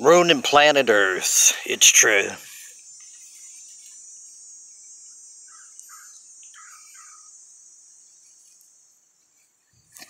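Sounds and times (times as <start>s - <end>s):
insects trilling: 0.0s - 10.0s
bird chirps: 2.6s - 8.6s.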